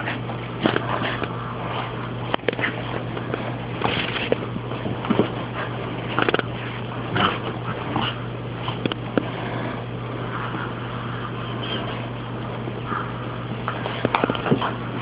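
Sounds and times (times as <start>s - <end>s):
puppy scuffling: 0.0s - 9.6s
steady low hum: 0.0s - 15.0s.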